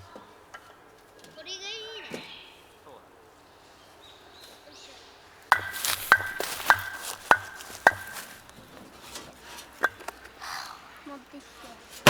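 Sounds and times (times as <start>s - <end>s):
hammer strikes on metal: 5.5s - 8.5s.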